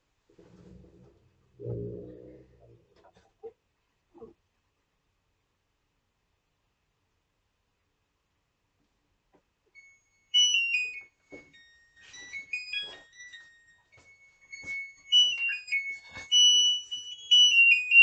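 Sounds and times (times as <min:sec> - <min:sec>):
washing machine beeping tune: 0:09.8 - 0:18.0.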